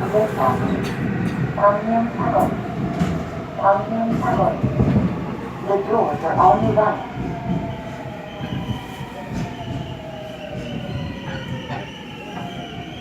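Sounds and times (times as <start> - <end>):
subway train brake whine: 6.7 - 13.0.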